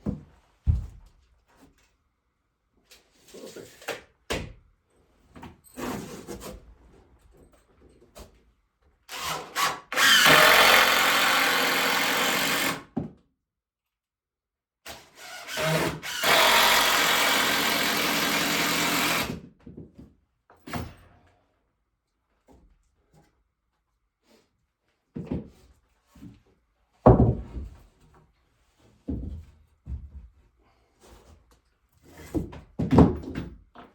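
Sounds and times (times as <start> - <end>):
power drill running: 9.1 - 12.9, 15.2 - 19.4.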